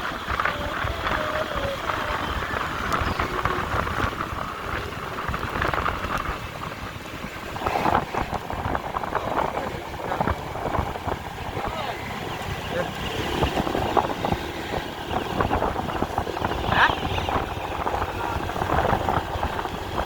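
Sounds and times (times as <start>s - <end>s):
vehicle road rumble: 0.0s - 20.0s
wind buffeting microphone: 0.0s - 20.0s.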